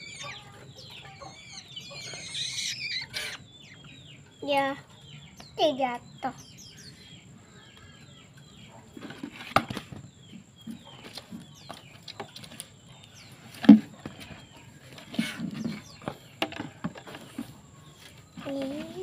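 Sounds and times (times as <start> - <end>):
handling rustling and knocks: 8.9 - 10.1.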